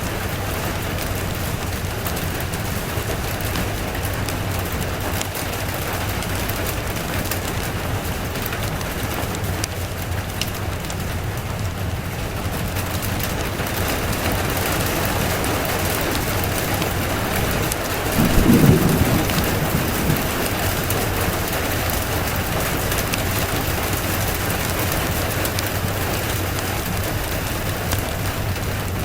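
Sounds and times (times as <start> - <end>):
steady rain falling: 0.0 - 29.0
low roll of thunder: 15.2 - 27.1.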